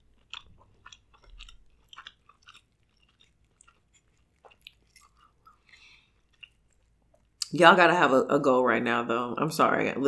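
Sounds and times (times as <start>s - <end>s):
person chewing food: 0.0s - 7.5s.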